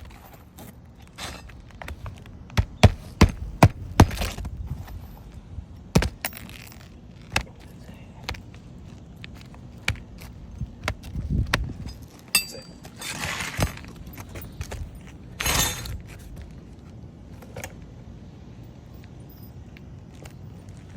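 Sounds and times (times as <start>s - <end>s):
metallic clinks and knocks: 11.8s - 13.2s.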